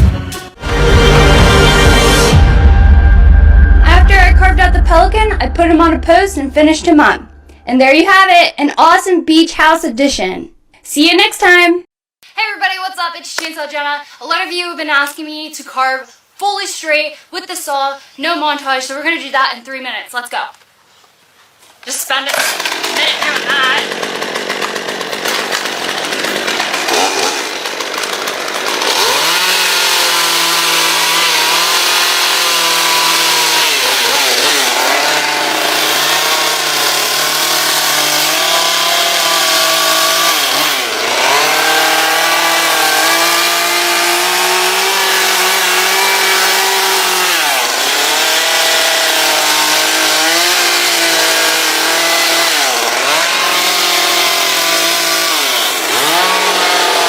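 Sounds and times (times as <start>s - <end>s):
chainsaw carving wood: 22.2s - 57.0s.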